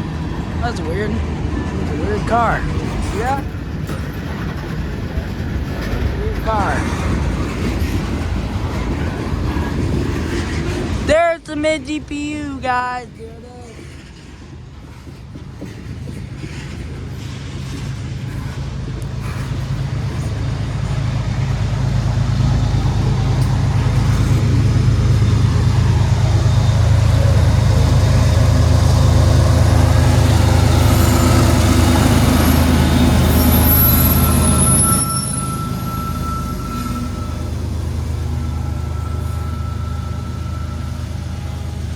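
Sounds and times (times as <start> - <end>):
freight train cars rumbling: 0.0 - 41.9
locomotive engine hum: 0.0 - 41.9
high wheel squeal: 17.8 - 41.9.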